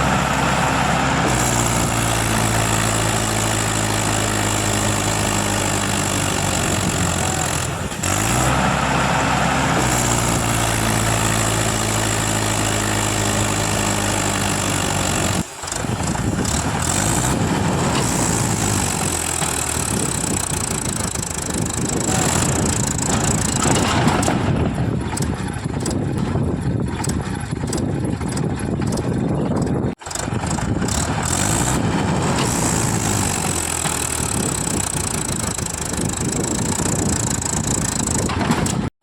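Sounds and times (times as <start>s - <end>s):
tractor engine running under load: 0.0s - 39.0s
knocks and rattles: 15.3s - 38.9s.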